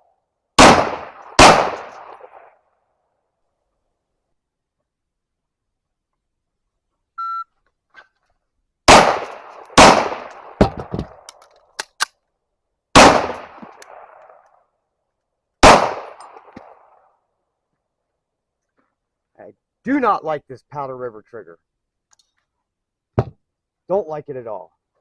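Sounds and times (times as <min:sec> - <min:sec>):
pistol shots: 0:00.6 - 0:02.5, 0:08.9 - 0:11.3, 0:13.0 - 0:14.4, 0:15.6 - 0:16.9
shot timer beep: 0:07.2 - 0:07.5.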